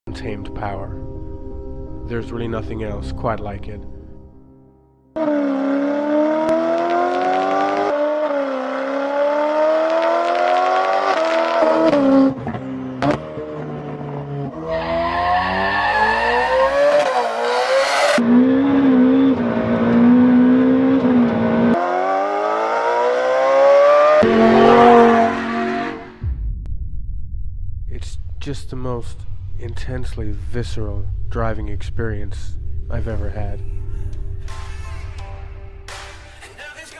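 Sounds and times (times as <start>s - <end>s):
car engine accelerating hard: 5.2s - 26.3s.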